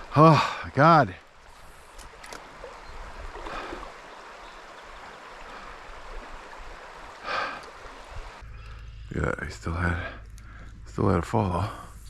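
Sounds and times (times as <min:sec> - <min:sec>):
stream water running: 0:00.0 - 0:12.0
faint clicks: 0:01.2 - 0:02.8, 0:07.5 - 0:09.0, 0:10.1 - 0:10.8.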